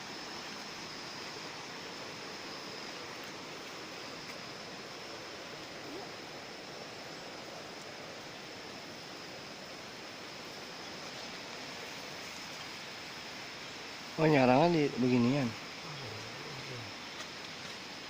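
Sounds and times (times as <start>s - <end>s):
water rushing: 0.0s - 18.0s.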